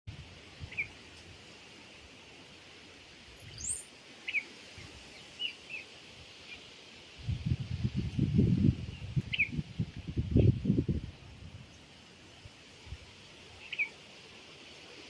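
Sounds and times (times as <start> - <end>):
faint outdoor background: 0.1 - 15.0
small birds chirping: 0.6 - 1.2, 3.2 - 6.8, 8.6 - 12.1, 13.4 - 14.1
high sweeping bird call: 3.4 - 5.9, 13.6 - 14.0.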